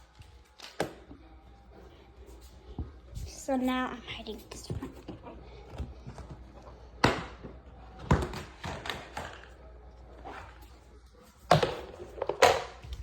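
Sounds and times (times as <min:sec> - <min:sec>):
objects knocking and thumping: 0:04.6 - 0:09.6.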